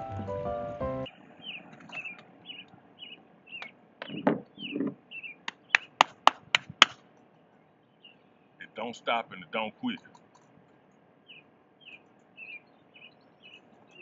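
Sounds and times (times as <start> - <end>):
background music: 0.0 - 1.1
small bird chirping: 0.0 - 6.0, 7.6 - 8.8, 11.2 - 14.0.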